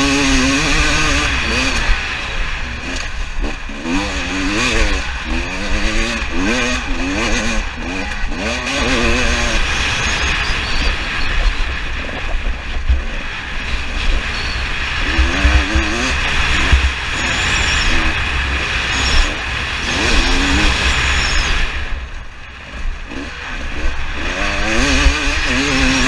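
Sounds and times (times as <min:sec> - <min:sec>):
dirt bike engine revving: 0:00.0 - 0:26.0
steady low rumble: 0:00.8 - 0:20.8.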